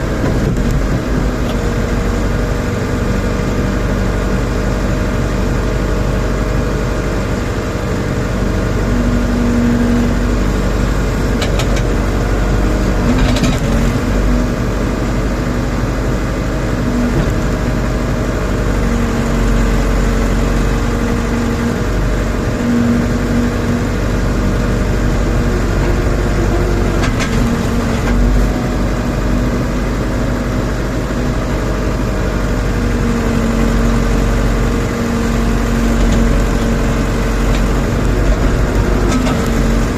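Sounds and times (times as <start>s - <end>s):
diesel engine running: 0.0s - 39.9s
higher hum: 21.9s - 32.7s.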